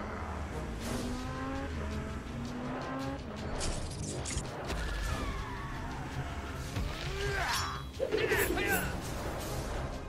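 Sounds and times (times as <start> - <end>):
race car engine revving: 0.0 - 3.6.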